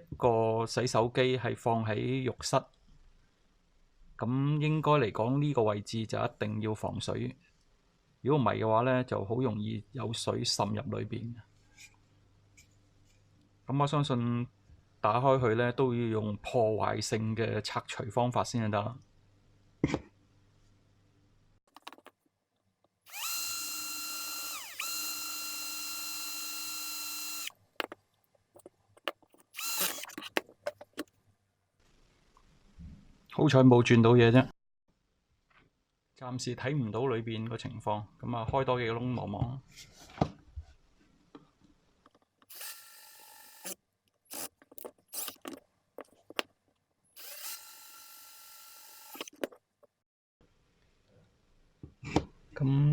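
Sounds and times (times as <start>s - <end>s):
electric drill whining: 23.1s - 27.5s, 29.5s - 30.4s, 42.5s - 44.5s, 45.1s - 45.4s, 47.2s - 49.3s.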